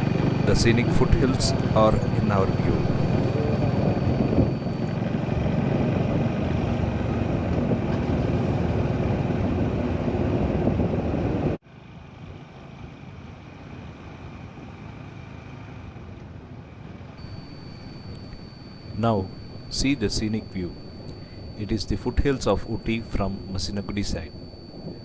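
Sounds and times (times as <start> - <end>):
quiet steady background noise: 0.0 - 5.0, 17.2 - 25.0.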